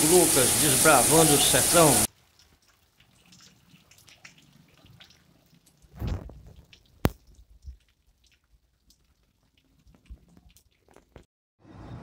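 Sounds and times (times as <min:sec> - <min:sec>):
water drips: 0:02.0 - 0:11.3.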